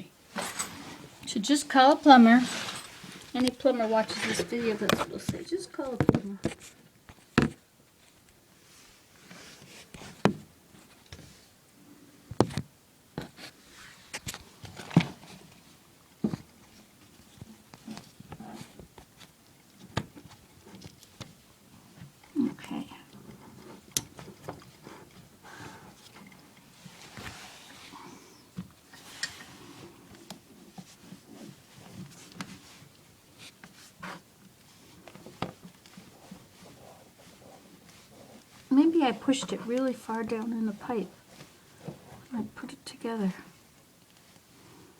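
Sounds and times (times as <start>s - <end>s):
plumbing fittings and tools handled: 0.3s - 1.3s, 2.1s - 6.8s.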